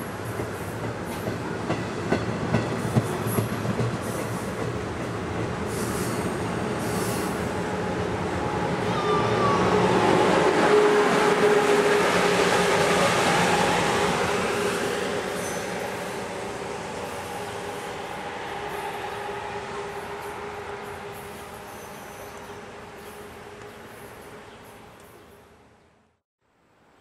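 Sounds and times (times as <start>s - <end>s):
train wheels clicking over rail joints: 0.2s - 7.4s
electric locomotive whine: 5.1s - 24.9s.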